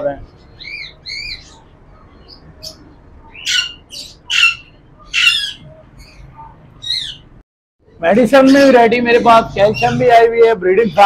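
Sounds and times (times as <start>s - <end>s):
bird chirps: 0.3s - 7.3s
harsh bird squawks: 0.5s - 7.3s.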